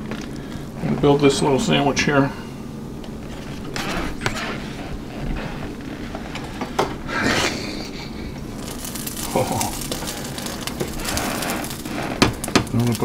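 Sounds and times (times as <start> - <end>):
frying pan sizzling: 3.2 - 13.0.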